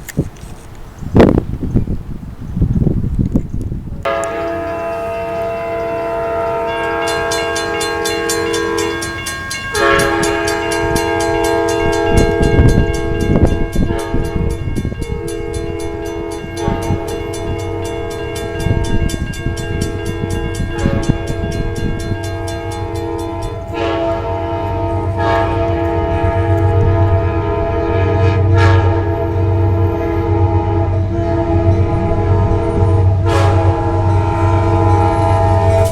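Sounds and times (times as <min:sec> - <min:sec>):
train wheels clattering on rails: 0:04.0 - 0:28.6, 0:35.3 - 0:35.9
crossing bell ringing: 0:04.1 - 0:35.9
train air horn blasts: 0:04.1 - 0:35.9.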